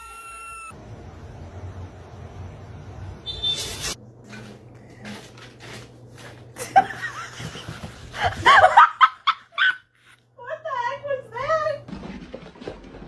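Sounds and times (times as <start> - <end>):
person laughing: 6.6 - 9.8.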